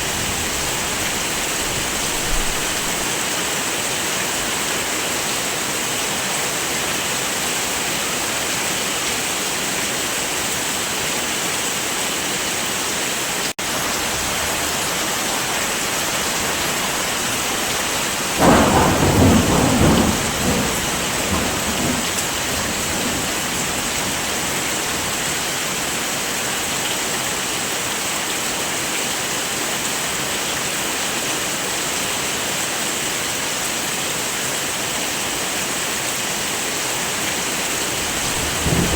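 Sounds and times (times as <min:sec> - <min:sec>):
thunder rumble: 0:00.0 - 0:03.1, 0:14.1 - 0:25.3, 0:37.4 - 0:38.9
heavy rain: 0:00.0 - 0:38.9.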